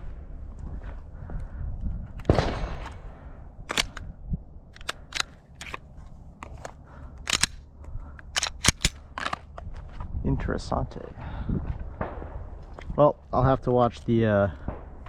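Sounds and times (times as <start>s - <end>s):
pistol clacks and clicks: 3.7s - 4.1s, 4.7s - 5.8s, 6.4s - 9.6s.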